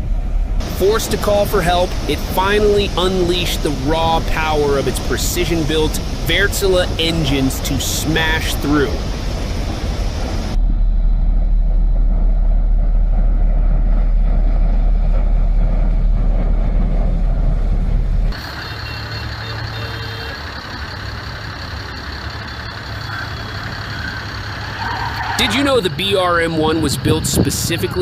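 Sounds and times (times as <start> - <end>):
heavy machinery rumbling: 0.0 - 28.0
vehicle noise: 0.0 - 28.0
reversing beeper: 18.3 - 27.0.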